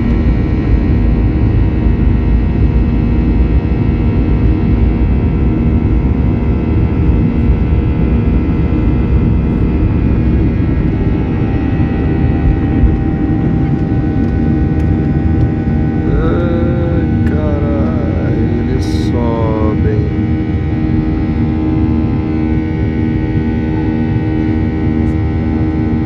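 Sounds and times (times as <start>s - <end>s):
jet engines rumbling: 0.0s - 26.0s
jet engine whining tones: 4.2s - 26.0s.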